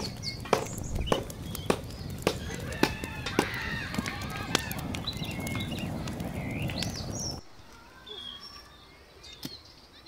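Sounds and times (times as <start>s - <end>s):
hatchet striking wood: 0.0s - 3.5s
small birds chirping: 0.0s - 10.0s.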